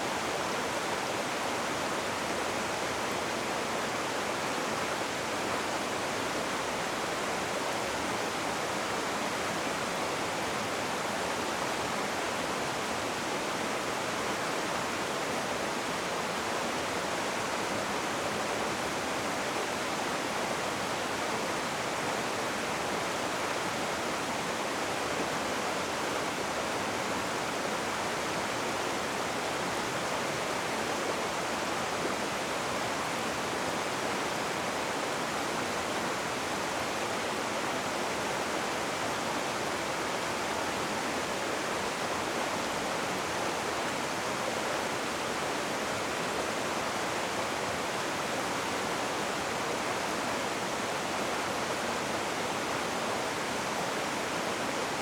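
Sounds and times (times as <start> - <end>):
rushing river water: 0.0 - 55.0.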